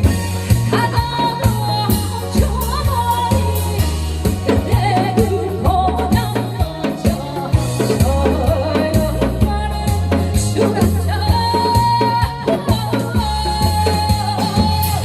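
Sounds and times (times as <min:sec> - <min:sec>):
drum kit and bass backing: 0:00.0 - 0:15.0
woman singing: 0:00.0 - 0:15.0.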